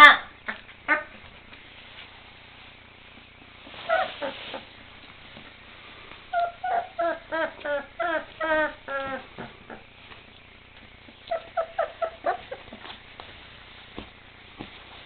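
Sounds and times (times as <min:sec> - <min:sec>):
puppies yelping and whining: 0:03.8 - 0:04.6, 0:06.3 - 0:09.8, 0:11.1 - 0:13.0.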